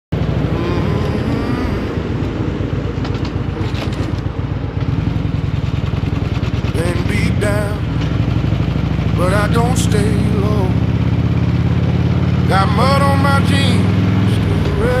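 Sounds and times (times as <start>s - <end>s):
motorcycle engine running: 0.2s - 15.0s
person singing with vibrato: 0.5s - 2.3s, 6.8s - 7.9s, 9.2s - 10.9s, 12.4s - 15.0s.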